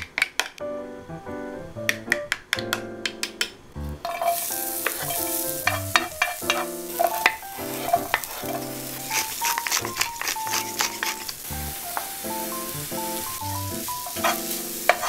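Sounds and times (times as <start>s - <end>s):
soft piano background music: 0.6s - 15.0s
onion sizzling in frying pan: 3.8s - 15.0s.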